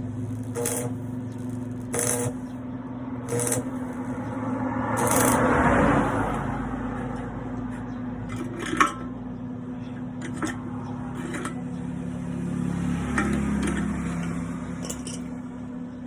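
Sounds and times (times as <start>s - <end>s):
steady electrical hum: 0.0s - 16.0s
sharp metallic clinks: 5.0s - 6.6s, 13.2s - 15.5s.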